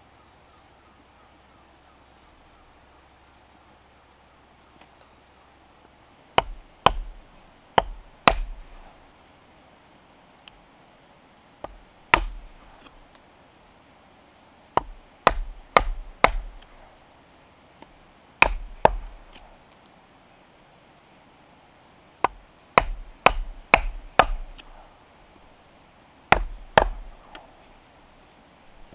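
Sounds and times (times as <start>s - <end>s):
hand tool chopping wood: 6.4s - 7.2s, 7.8s - 8.9s, 11.6s - 12.9s, 14.8s - 16.8s, 18.4s - 19.5s, 22.2s - 24.8s, 26.3s - 27.5s.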